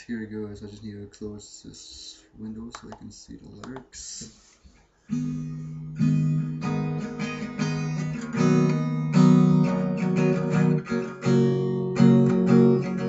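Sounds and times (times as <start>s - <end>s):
acoustic guitar strumming chords: 5.1s - 13.0s.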